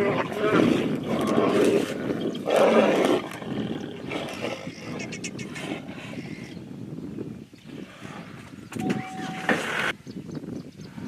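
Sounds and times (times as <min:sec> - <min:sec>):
tigers growling and snarling: 0:00.0 - 0:06.2.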